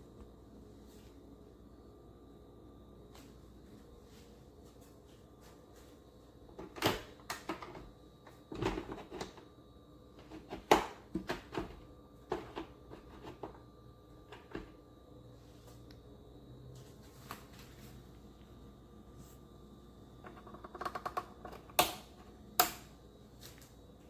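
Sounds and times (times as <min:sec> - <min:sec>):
hard objects knocking and clicking: 0:20.2 - 0:22.0.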